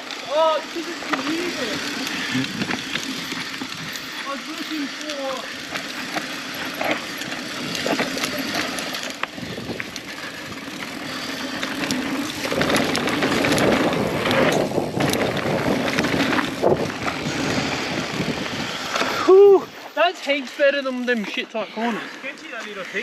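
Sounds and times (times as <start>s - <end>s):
bike clicks and rattles: 0.0s - 21.4s
bike tyres on dirt trail: 0.0s - 23.0s
wind on microphone: 9.4s - 10.6s, 12.4s - 19.0s.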